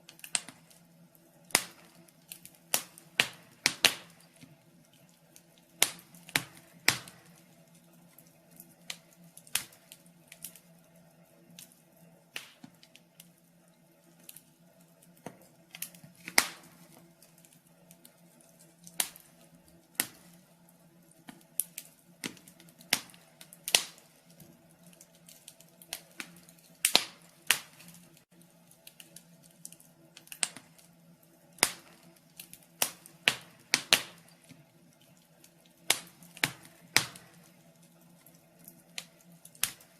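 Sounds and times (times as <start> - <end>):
faint steady hum: 0.0 - 39.9
firewood crackling and popping: 0.0 - 39.9.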